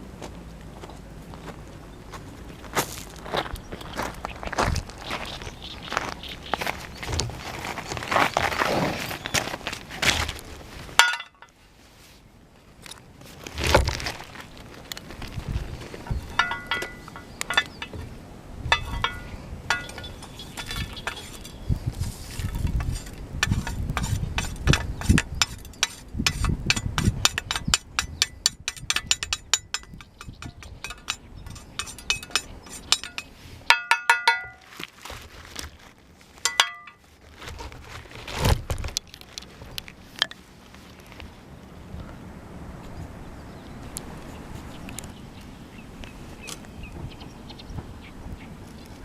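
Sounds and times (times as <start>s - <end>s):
ringing metallic clinks: 11.0s - 11.5s, 16.1s - 18.0s, 18.7s - 21.6s, 27.6s - 34.7s, 36.5s - 37.0s.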